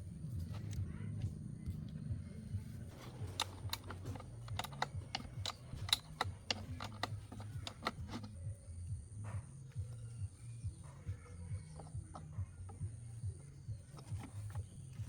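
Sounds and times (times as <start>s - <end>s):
low steady hum: 0.0s - 15.0s
sharp clicks and taps: 2.9s - 8.3s.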